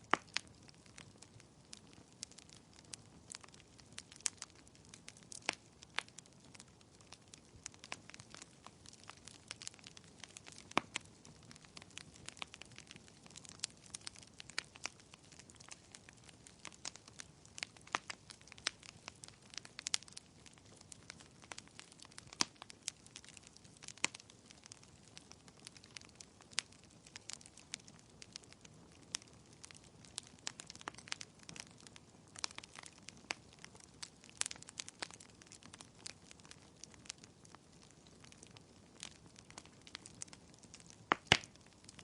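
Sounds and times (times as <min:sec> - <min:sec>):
soft low hiss: 0:00.0 - 0:42.0
wood fire crackling: 0:00.0 - 0:42.0.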